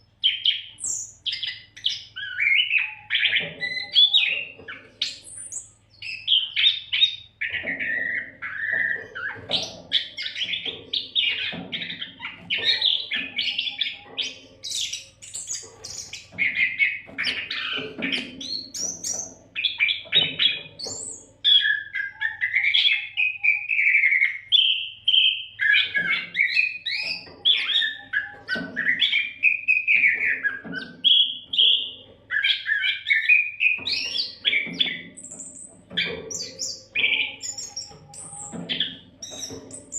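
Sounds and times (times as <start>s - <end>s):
bird singing whistles and chirps: 0.0s - 39.9s.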